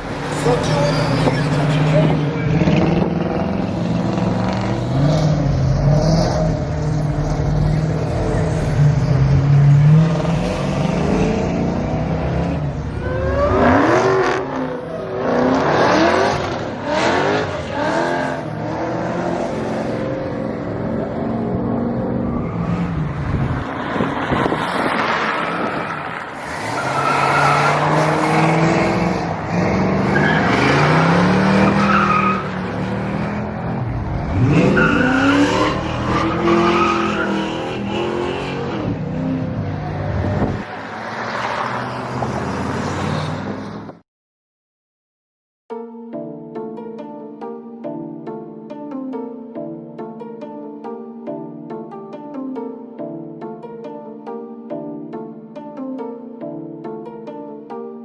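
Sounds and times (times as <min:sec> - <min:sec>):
car engine revving hard: 0:00.1 - 0:40.6
tyres squealing: 0:00.4 - 0:02.6, 0:34.3 - 0:37.9.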